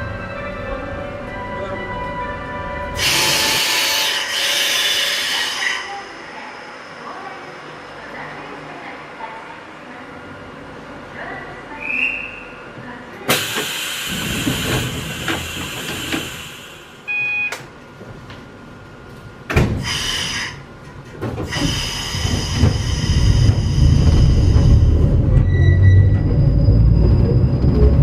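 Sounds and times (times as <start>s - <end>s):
railcar rumbling: 0.0s - 17.1s, 17.8s - 28.0s
air hiss bursts: 19.8s - 20.6s
short electronic beep: 25.4s - 27.0s.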